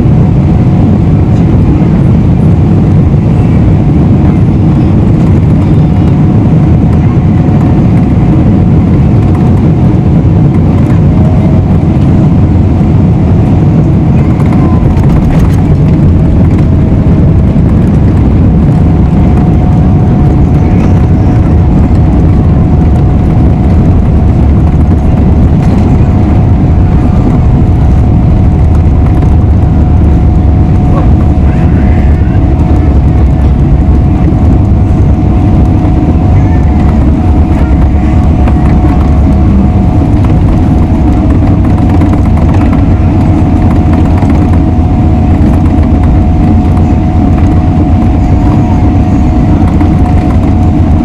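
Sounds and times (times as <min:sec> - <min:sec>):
aircraft engine and airflow rumble: 0:00.0 - 0:51.0
faint whine: 0:00.0 - 0:51.0.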